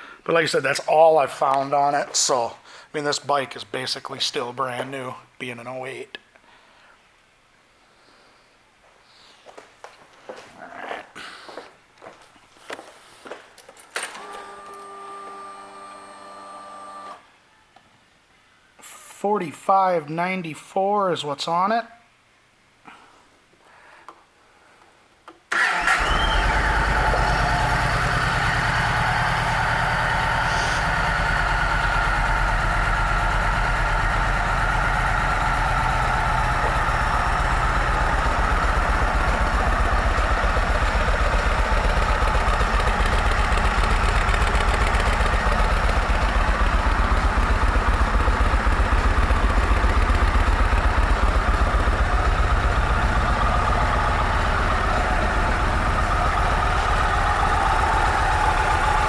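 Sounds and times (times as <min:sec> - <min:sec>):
motorcycle engine idling: 0:25.6 - 0:59.0.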